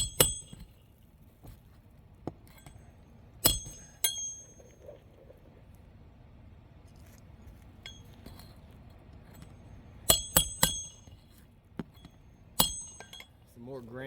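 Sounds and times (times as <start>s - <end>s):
hatchet striking nails: 0.0s - 0.8s, 3.4s - 4.5s, 10.1s - 11.1s, 11.8s - 13.3s.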